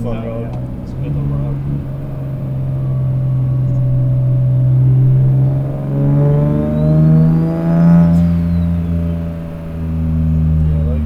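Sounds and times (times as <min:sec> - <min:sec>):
car engine accelerating: 0:00.0 - 0:11.0
turbo whistle: 0:02.8 - 0:10.9.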